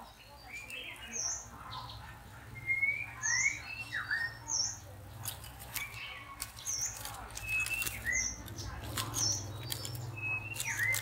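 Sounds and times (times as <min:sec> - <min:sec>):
songbird chirping and whistling: 0:00.1 - 0:04.8, 0:05.8 - 0:08.6, 0:09.2 - 0:11.0.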